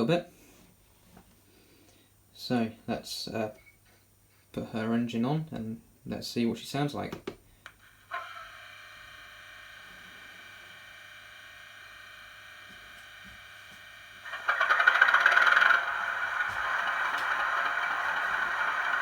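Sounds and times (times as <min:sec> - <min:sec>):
quiet steady hum: 0:00.0 - 0:19.0
diesel engine starting and idling: 0:14.2 - 0:19.0.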